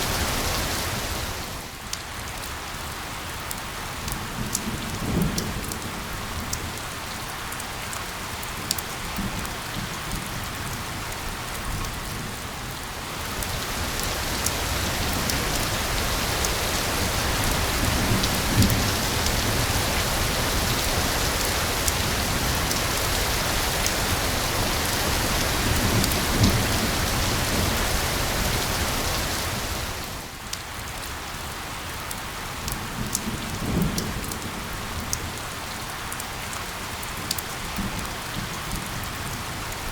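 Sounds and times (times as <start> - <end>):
white-noise hiss: 0.0 - 1.8, 13.0 - 30.4
rain drops pattering: 0.0 - 39.9.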